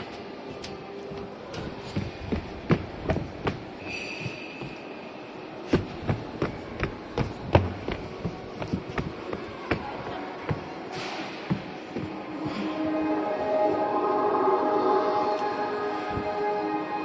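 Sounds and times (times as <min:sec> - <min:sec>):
footsteps on hard floor: 0:01.6 - 0:04.8, 0:05.7 - 0:12.6.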